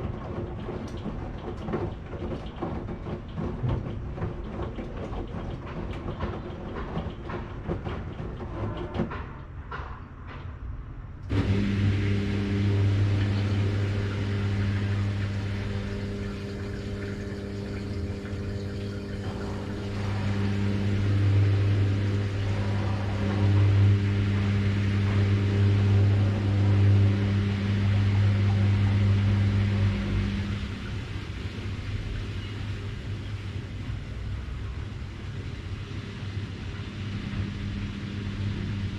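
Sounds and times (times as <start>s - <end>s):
washing machine humming: 0.0s - 9.6s, 11.2s - 38.9s.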